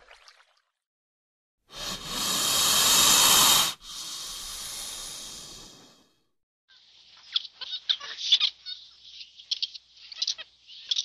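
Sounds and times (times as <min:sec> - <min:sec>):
snake hissing: 0:01.7 - 0:06.2.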